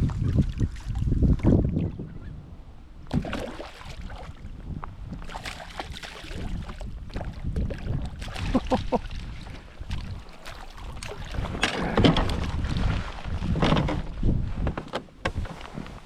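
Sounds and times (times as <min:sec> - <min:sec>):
wind rumbling on microphone: 0:00.0 - 0:16.0
kayak handling knocks and rustles: 0:05.1 - 0:16.0.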